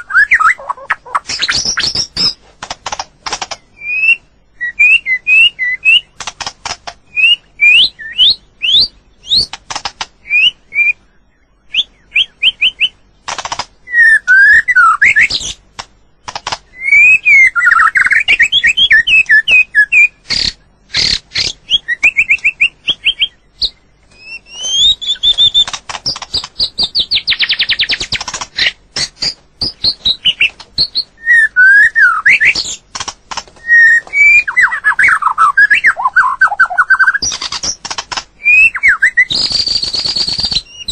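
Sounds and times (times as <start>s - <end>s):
bird singing whistled phrases: 0.0s - 2.4s, 3.6s - 6.2s, 7.1s - 9.5s, 10.2s - 13.0s, 13.9s - 15.6s, 16.7s - 25.8s, 28.6s - 32.8s, 33.6s - 37.7s, 38.4s - 40.9s
bird trill: 0.0s - 2.4s, 3.4s - 6.2s, 7.1s - 9.6s, 10.2s - 13.1s, 13.8s - 15.6s, 16.7s - 32.9s, 33.6s - 40.9s
bird clicking rattles: 1.5s - 3.6s, 9.4s - 10.1s, 13.3s - 13.7s, 16.2s - 16.6s, 25.2s - 26.7s, 27.4s - 29.8s, 37.2s - 38.3s.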